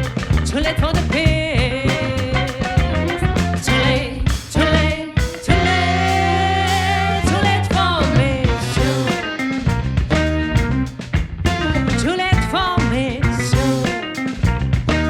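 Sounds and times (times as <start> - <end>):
drum beat: 0.0 - 15.0
live band playing: 0.0 - 15.0
person singing: 0.5 - 9.4, 12.1 - 14.2.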